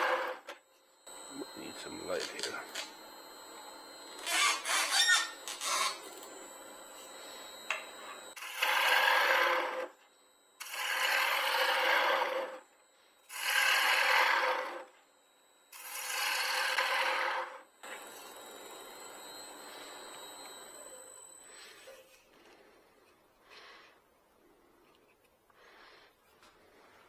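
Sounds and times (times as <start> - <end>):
woodturning tool scraping wood: 0.0 - 9.9, 10.6 - 12.6, 13.3 - 14.9.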